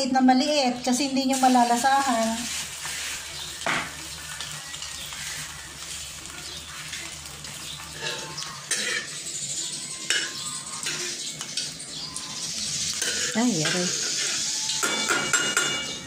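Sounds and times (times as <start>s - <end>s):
meat sizzling in hot oil: 0.3s - 16.0s
metal spatula scraping pan: 7.9s - 11.6s, 12.7s - 16.0s.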